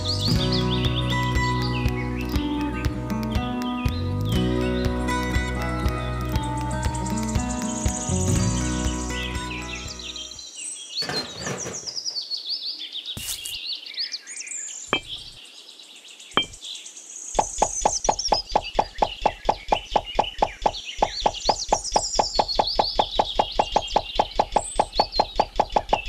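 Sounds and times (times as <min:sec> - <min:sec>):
birds chirping: 0:00.0 - 0:26.0
fast even knocking: 0:17.4 - 0:26.0.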